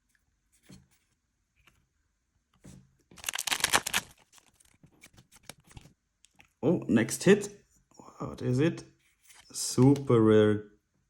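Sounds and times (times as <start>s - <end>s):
cards clicking: 3.2s - 4.5s
wrapper tearing open: 3.2s - 5.7s
wrapper crinkling: 3.2s - 5.8s.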